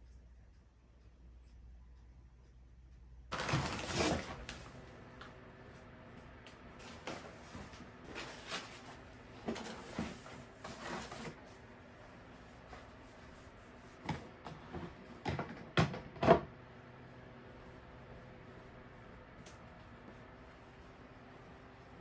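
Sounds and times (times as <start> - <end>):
objects knocking and clattering: 14.0 - 16.5.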